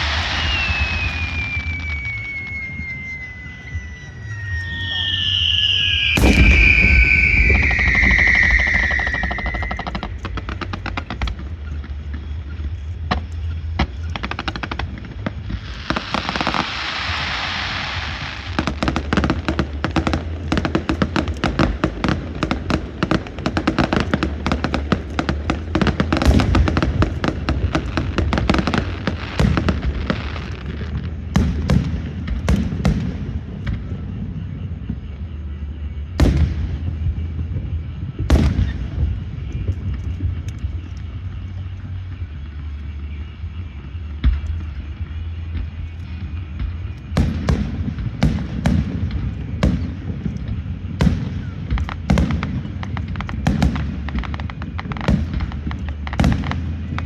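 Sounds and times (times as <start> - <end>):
hissing whoosh: 0.0 - 10.3
firework bangs: 0.0 - 42.2, 44.0 - 57.0
firecrackers crackling pops: 0.0 - 42.8, 43.8 - 57.0
steady low rumble: 0.0 - 57.0.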